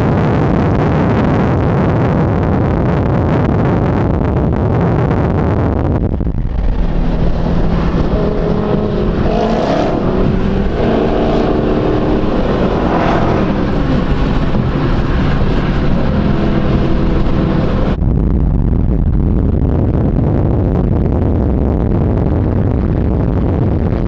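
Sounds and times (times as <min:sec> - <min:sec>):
car engine revving: 0:06.2 - 0:18.0.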